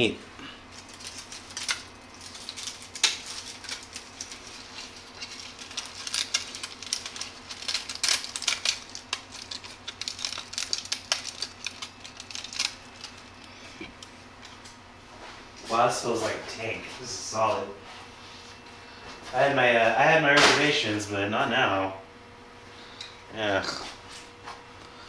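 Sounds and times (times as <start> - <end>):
faint steady hum: 0.0 - 25.0
plastic parts clicking and snapping: 0.8 - 14.1.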